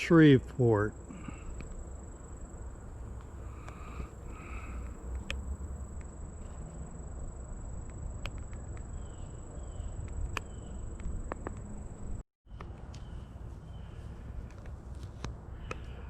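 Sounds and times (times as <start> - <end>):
steady high-pitched tone: 0.0 - 12.2.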